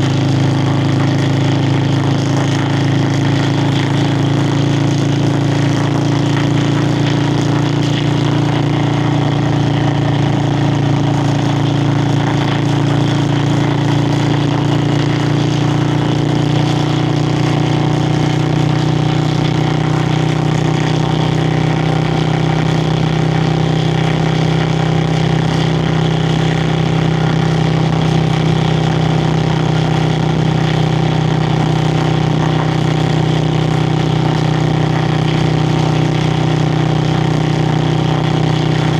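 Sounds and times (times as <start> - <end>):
motorcycle exhaust while riding: 0.0 - 38.9.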